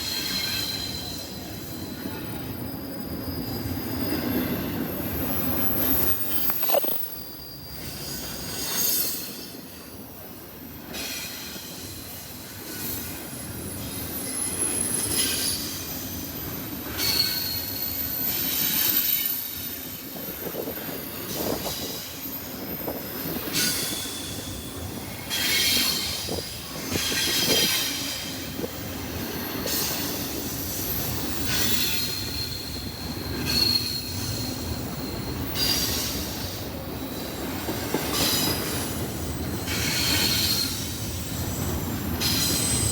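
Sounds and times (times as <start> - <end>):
freight train cars rolling past: 0.0 - 42.9
high-pitched wheel squeals: 0.2 - 9.3
train wheel clatter: 3.2 - 9.8, 10.7 - 42.9.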